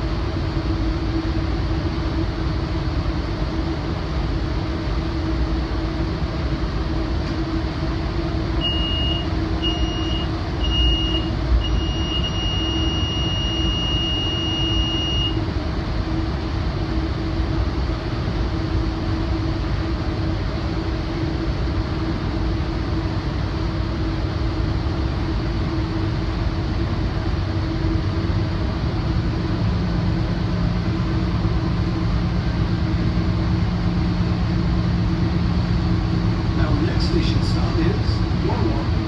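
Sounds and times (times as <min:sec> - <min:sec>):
low steady hum: 0:00.0 - 0:39.0
train running rumble: 0:00.0 - 0:39.0
steady drone: 0:15.2 - 0:39.0.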